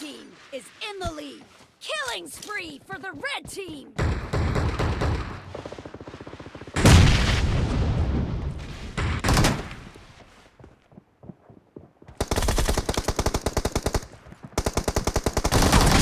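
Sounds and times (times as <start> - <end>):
video game automatic gunfire: 12.2 - 16.0.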